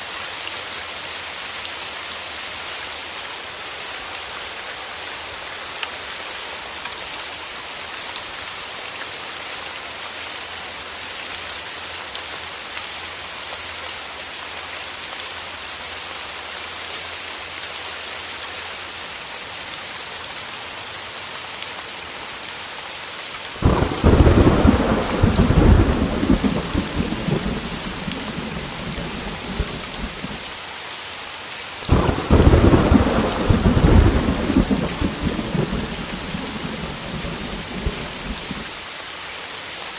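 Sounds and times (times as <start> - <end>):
heavy rain: 0.0 - 39.9
thunder rumbling: 23.6 - 30.4, 31.9 - 38.7.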